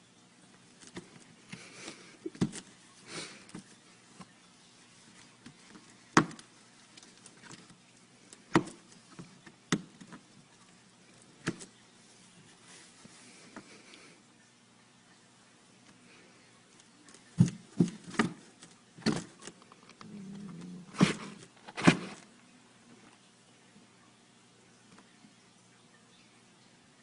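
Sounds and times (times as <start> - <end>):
irregular knocks and thumps: 17.3 - 19.4.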